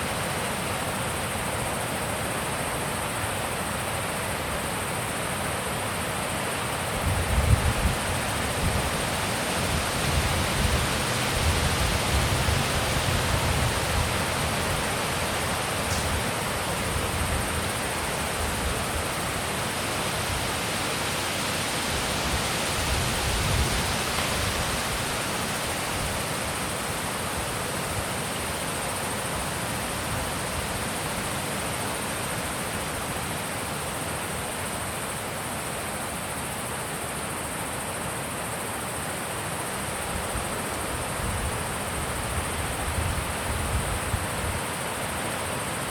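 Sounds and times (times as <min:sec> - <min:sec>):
wind buffeting microphone: 0:07.0 - 0:14.7
wind blowing: 0:07.0 - 0:26.2.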